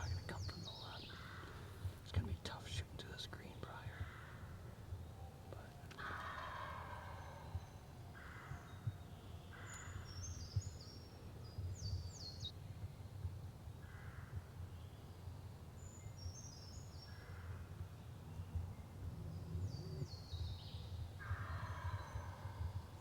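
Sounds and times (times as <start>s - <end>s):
rough low bird calls: 0.0s - 12.5s, 18.4s - 23.0s.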